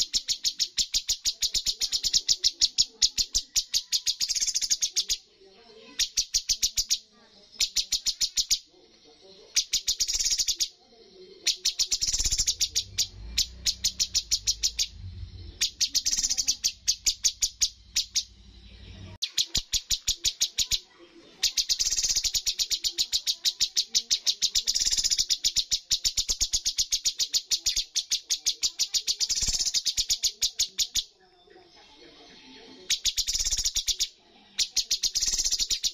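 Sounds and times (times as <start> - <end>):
bird singing high sharp notes: 0.0 - 5.2, 9.6 - 10.7, 11.5 - 31.1, 32.9 - 35.9
low rumble: 12.9 - 16.0.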